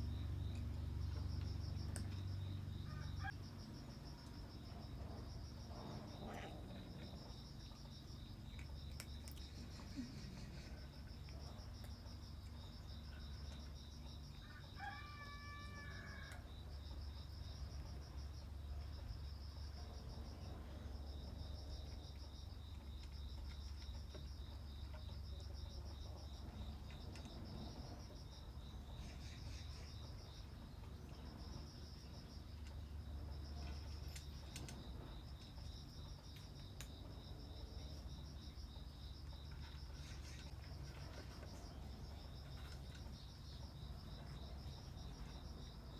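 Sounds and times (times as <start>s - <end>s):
crickets chirping: 0.0s - 45.9s
distant rooster crowing: 14.4s - 16.5s.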